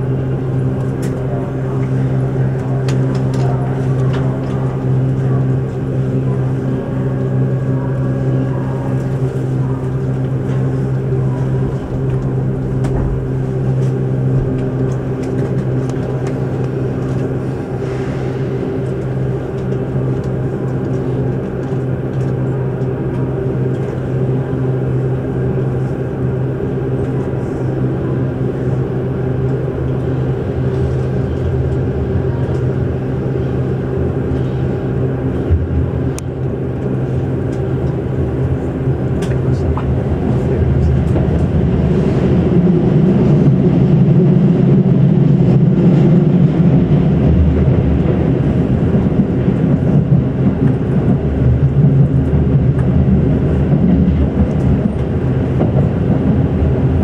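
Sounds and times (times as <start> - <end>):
train equipment humming: 0.0 - 57.0.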